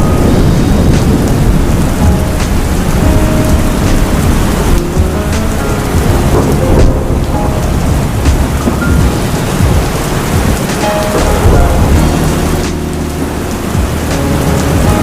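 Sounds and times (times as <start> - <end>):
deep low rumble: 0.0 - 10.6
heavy rain pouring: 0.0 - 15.0
raindrops ticking: 0.0 - 15.0.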